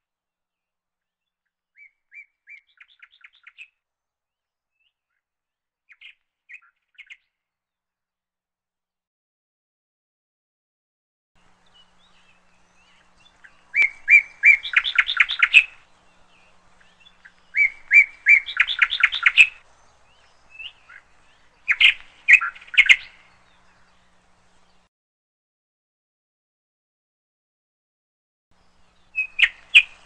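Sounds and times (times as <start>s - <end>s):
songbird singing quick chirps: 1.2s - 3.8s, 5.9s - 7.4s, 11.4s - 24.9s, 28.6s - 30.0s.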